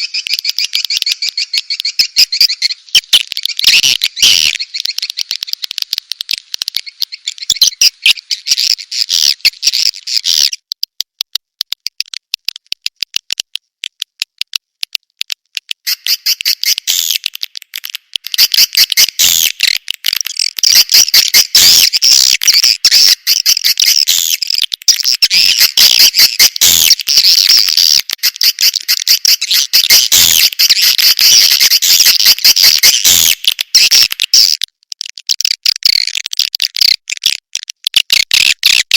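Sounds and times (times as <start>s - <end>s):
swiftlet chirping and twittering: 0.0s - 10.6s, 15.8s - 17.3s, 18.3s - 34.6s.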